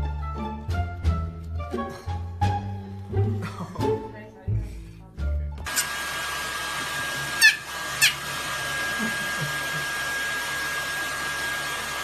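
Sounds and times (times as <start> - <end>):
hair dryer blowing with whine: 5.6 - 12.0
small dog yipping: 7.4 - 8.2.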